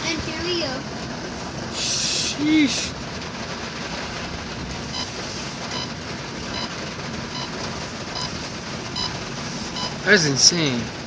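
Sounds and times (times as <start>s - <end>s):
car driving through floodwater: 0.0s - 11.0s
faint electronic beep: 6.5s - 6.7s.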